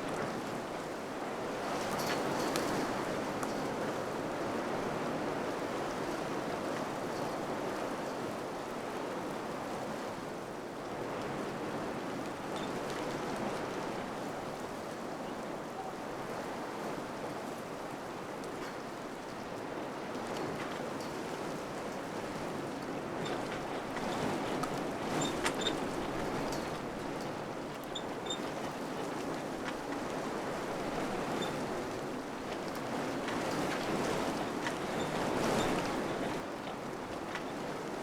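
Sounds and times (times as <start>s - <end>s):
faint light ticks: 2.0s - 3.7s.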